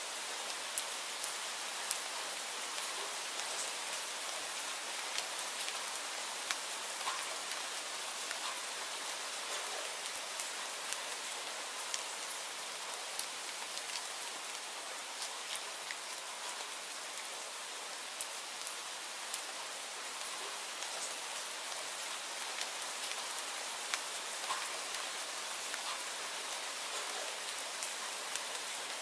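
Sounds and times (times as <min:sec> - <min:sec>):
steady rain hissing: 0:00.0 - 0:29.0
raindrops ticking: 0:05.0 - 0:07.6, 0:08.2 - 0:11.1, 0:22.4 - 0:29.0.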